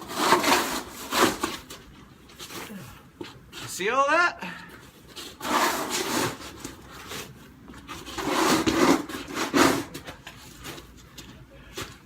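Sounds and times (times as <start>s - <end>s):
snow shovel scraping snow: 0.0s - 1.6s, 5.3s - 6.7s, 8.0s - 10.0s.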